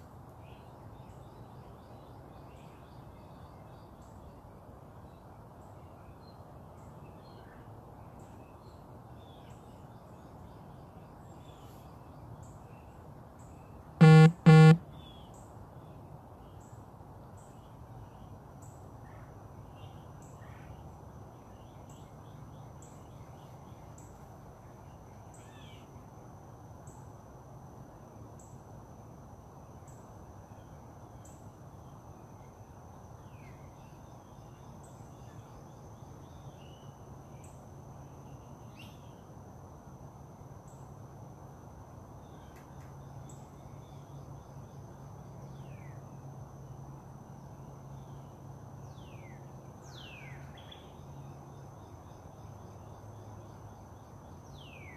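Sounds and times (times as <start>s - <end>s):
low steady hum: 14.0s - 14.8s.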